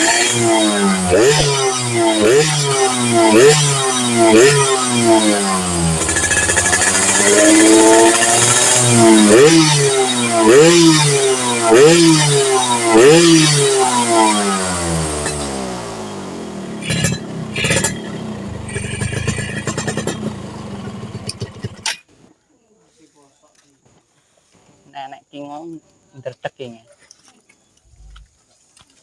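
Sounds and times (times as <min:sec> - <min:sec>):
two-stroke engine revving: 0:00.0 - 0:21.9
engine pops: 0:05.9 - 0:09.2, 0:16.8 - 0:22.0.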